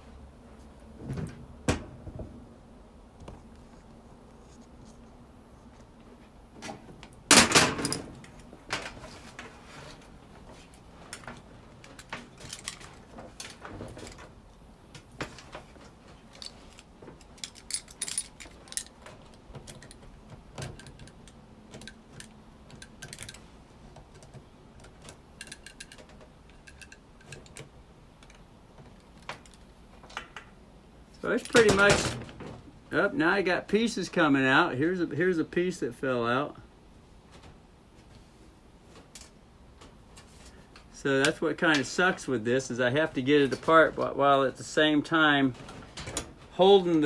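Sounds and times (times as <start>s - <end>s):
plastic and metal clicks and rattles: 16.3s - 30.5s.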